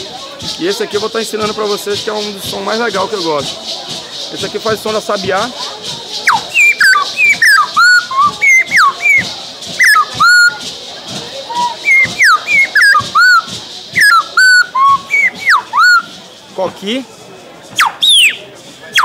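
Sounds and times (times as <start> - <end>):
bird-call whistle notes: 6.2 - 10.6, 11.5 - 16.2, 17.7 - 19.0.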